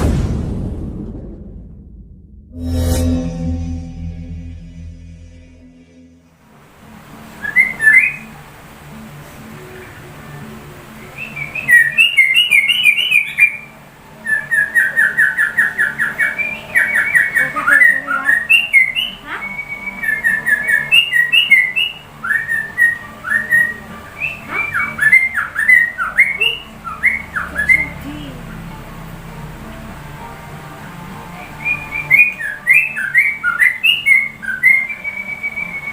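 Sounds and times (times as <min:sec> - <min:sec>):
bird singing whistled notes: 0:07.4 - 0:08.4, 0:11.0 - 0:28.1, 0:31.5 - 0:35.9.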